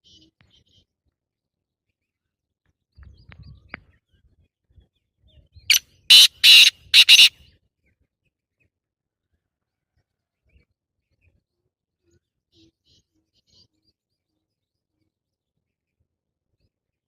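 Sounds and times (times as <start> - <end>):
bird calling with harsh grating notes: 6.1 - 7.4.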